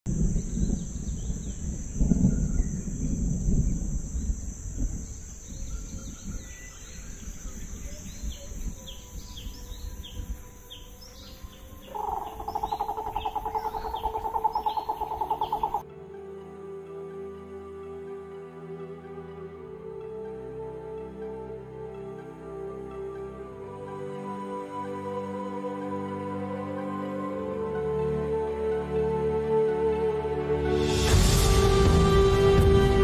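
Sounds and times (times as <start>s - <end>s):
high-pitched hiss: 0.1s - 15.8s
birds chirping: 4.8s - 15.8s.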